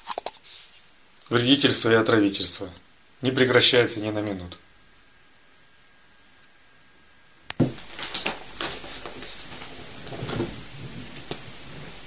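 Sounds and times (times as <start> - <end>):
steady hiss: 0.0 - 12.0
rustling: 7.6 - 12.0.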